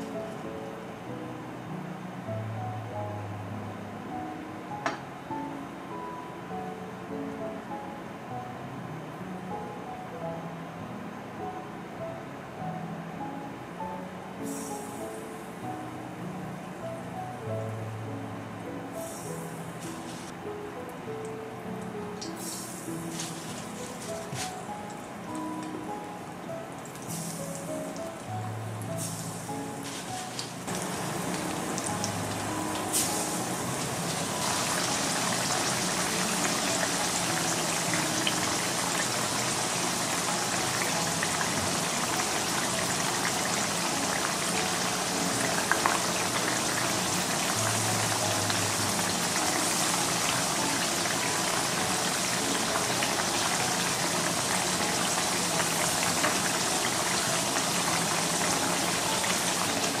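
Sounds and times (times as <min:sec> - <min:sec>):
potato slices sizzling in oil: 0:22.2 - 0:25.6, 0:26.9 - 1:00.0.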